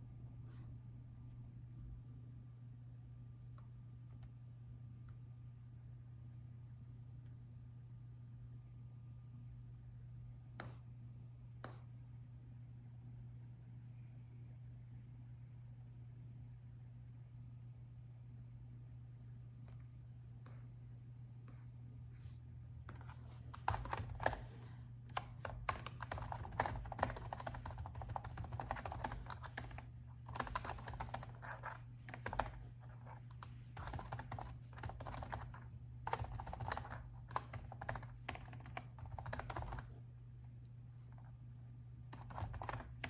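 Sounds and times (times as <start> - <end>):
faint low hum: 0.0 - 43.0
laptop keyboard typing: 22.9 - 40.0, 42.1 - 43.0.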